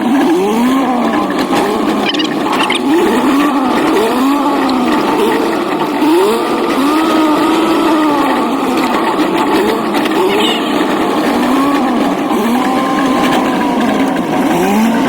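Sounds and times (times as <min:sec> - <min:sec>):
truck engine revving under load: 0:00.0 - 0:15.0.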